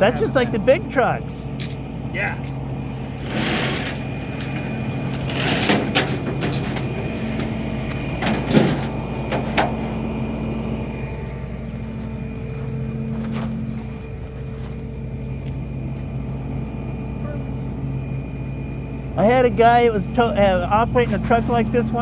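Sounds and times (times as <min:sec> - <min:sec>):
tow truck engine running: 0:00.0 - 0:22.0
metal knocks and clanks: 0:03.1 - 0:10.0.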